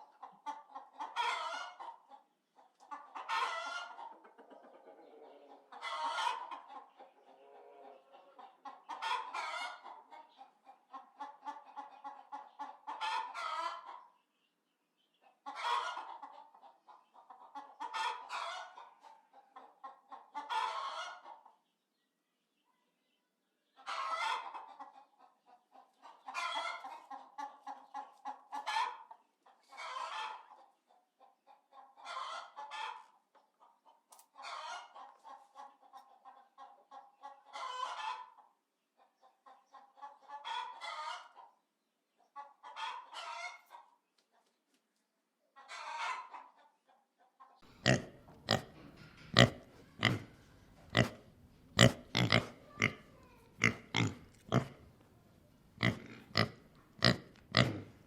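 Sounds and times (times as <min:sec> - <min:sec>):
chicken clucking: 0:00.0 - 0:21.9, 0:22.6 - 0:58.0
pig grunts: 0:47.7 - 0:54.9, 0:55.8 - 0:58.0.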